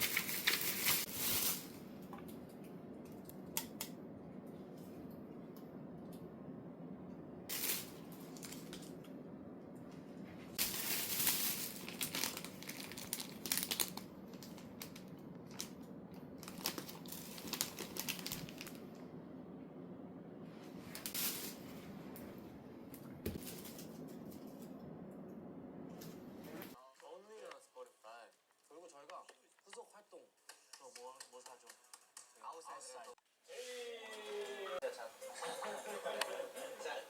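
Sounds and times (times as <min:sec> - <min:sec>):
crinkling and rustling: 0:00.0 - 0:02.4, 0:07.5 - 0:09.1, 0:10.4 - 0:18.9, 0:23.3 - 0:24.8
low steady hum: 0:00.0 - 0:27.5.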